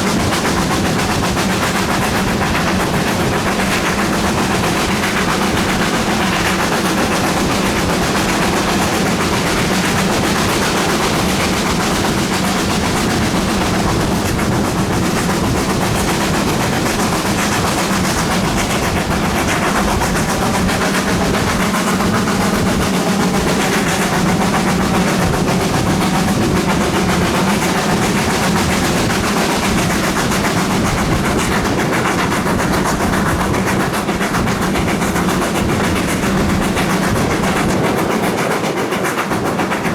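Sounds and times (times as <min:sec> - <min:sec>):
steady drone: 0:00.0 - 0:39.9
steam locomotive exhaust beats: 0:00.0 - 0:39.9.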